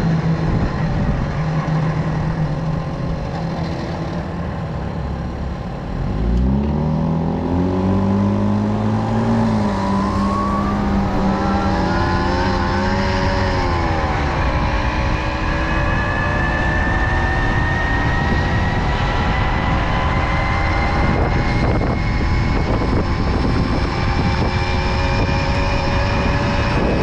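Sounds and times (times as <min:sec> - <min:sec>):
moped engine revving: 0:06.2 - 0:27.0.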